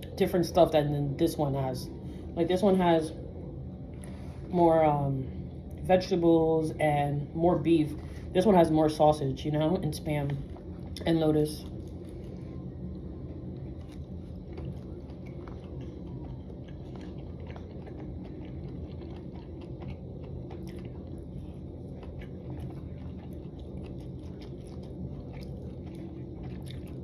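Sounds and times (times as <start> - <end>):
steady low hum: 0.0 - 27.0
person chewing with wet clicks: 9.8 - 27.0.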